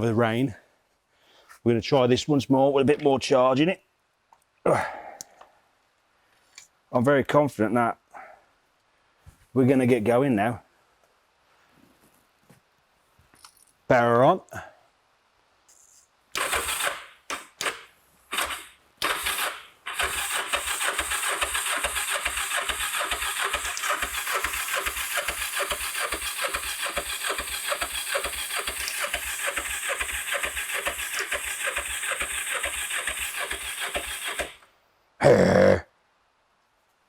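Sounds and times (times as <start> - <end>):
motorcycle electric starter cranking: 16.4 - 34.6.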